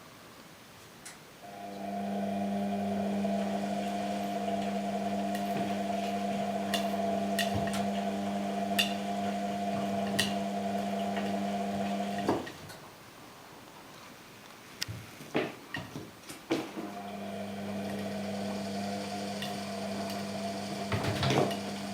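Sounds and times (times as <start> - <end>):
washing machine motor hum: 1.4 - 12.6, 16.8 - 21.9.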